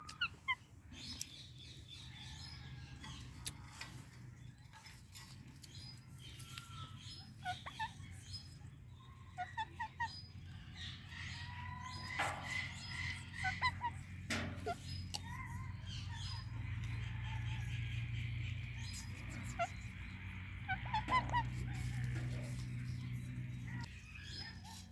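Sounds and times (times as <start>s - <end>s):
parrots squawking and chirping: 0.0s - 2.9s, 5.7s - 24.9s
steady low hum: 10.1s - 24.9s.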